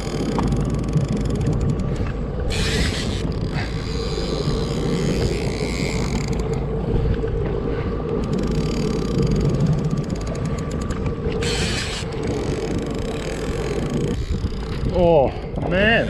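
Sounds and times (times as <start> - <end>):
boat motor running: 0.0 - 16.0
fishing reel clicker ratcheting: 2.5 - 6.6, 8.2 - 15.0.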